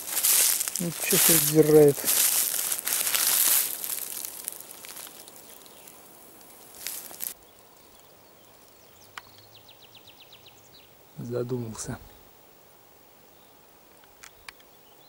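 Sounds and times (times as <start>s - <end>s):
rustling in dry leaf litter: 0.0s - 7.9s.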